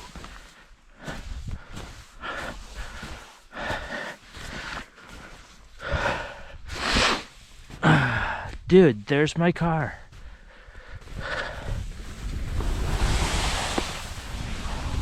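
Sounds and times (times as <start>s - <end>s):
person panting: 0.0s - 8.6s, 10.1s - 12.0s.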